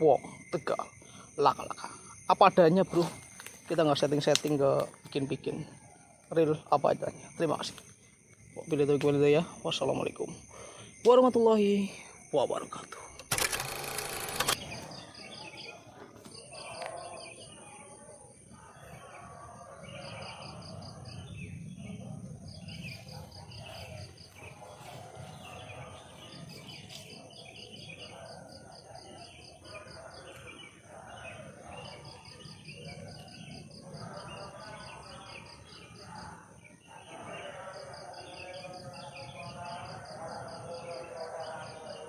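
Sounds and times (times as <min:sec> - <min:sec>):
insects buzzing: 0:00.0 - 0:17.6, 0:20.2 - 0:35.9
rapid insect chirps: 0:00.0 - 0:42.0.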